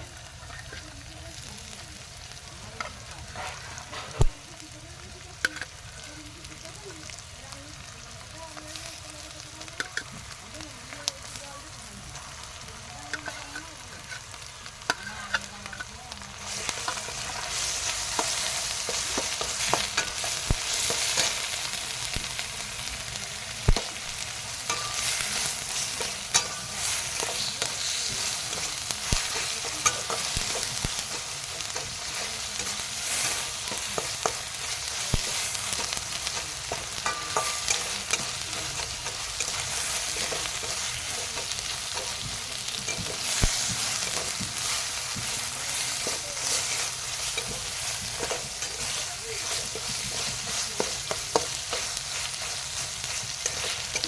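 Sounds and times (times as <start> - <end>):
curry sizzling in a pan: 0.0 - 54.0
spatula scraping a pan: 2.8 - 4.3, 12.2 - 22.2, 23.7 - 54.0.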